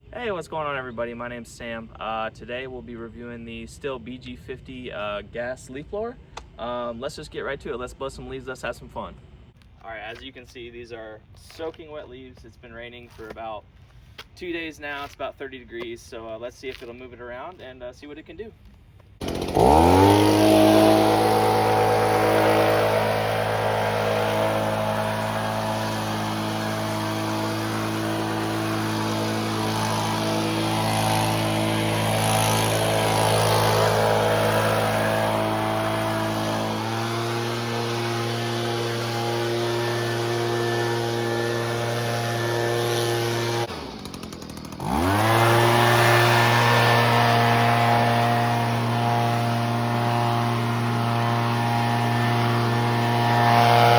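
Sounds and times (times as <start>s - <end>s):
leaf blower engine revving: 19.2s - 53.9s.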